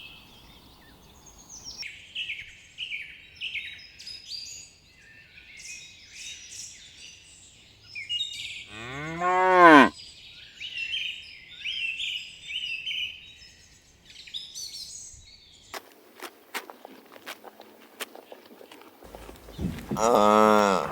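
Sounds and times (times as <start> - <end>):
birds chirping: 0.0 - 1.8, 8.7 - 9.9, 15.8 - 20.9
cow mooing: 8.7 - 9.9, 19.1 - 20.9.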